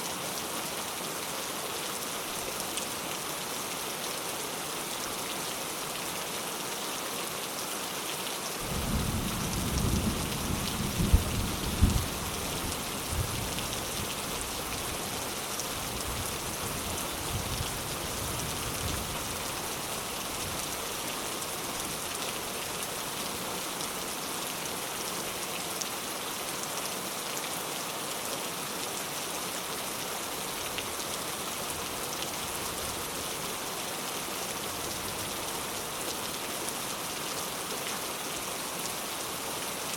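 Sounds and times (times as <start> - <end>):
rain hissing on surfaces: 0.0 - 39.9
thunder rumbling and cracking: 8.7 - 12.2.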